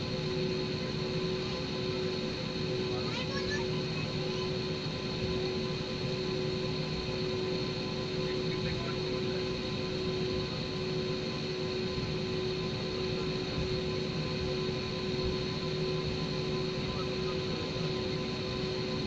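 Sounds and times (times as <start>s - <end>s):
jet engine and airflow rush: 0.0s - 19.0s
steady whining tones: 0.0s - 19.0s.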